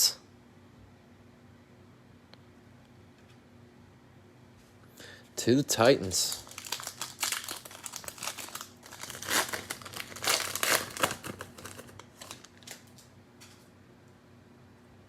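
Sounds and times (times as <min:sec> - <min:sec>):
cellophane wrapper crinkling: 0:06.1 - 0:13.1.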